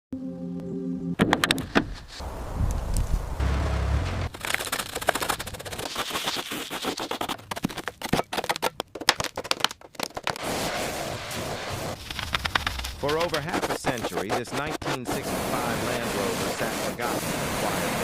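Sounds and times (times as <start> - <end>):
low rumble: 2.2 - 4.3.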